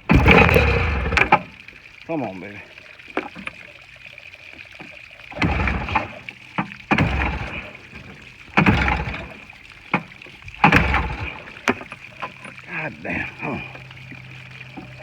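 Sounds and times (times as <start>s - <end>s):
engine turning over: 0.0s - 1.6s, 5.3s - 15.0s
outboard motor starter cord pulls: 0.0s - 1.7s, 4.8s - 15.0s.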